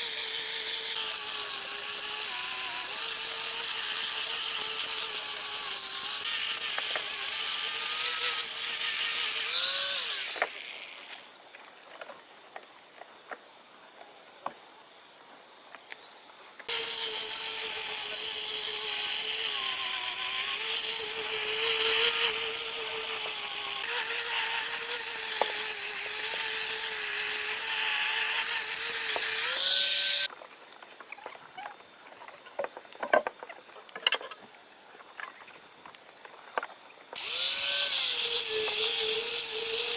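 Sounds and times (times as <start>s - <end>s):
chainsaw cutting wood: 0.0s - 11.3s, 16.7s - 30.3s, 37.2s - 39.9s.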